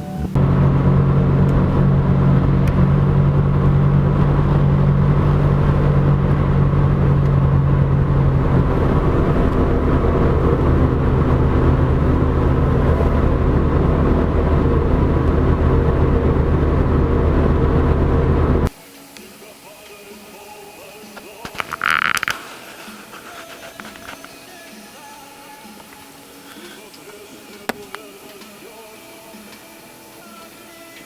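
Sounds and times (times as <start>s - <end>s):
vehicle engine running: 0.0s - 18.7s.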